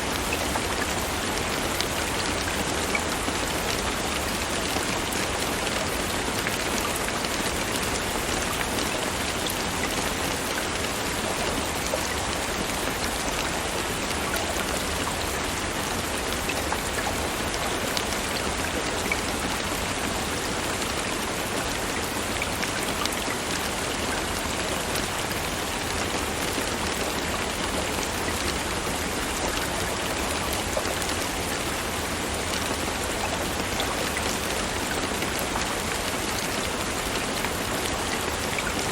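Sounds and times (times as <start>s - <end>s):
raindrops ticking on a surface: 0.0s - 38.9s
steady rain hiss: 0.0s - 38.9s.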